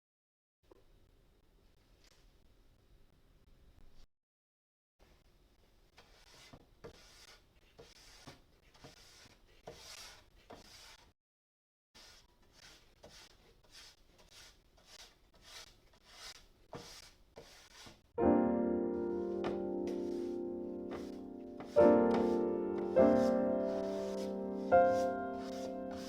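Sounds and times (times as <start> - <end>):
soft brushing strokes: 12.0 - 18.0, 19.0 - 26.0
piano chords: 18.2 - 26.0.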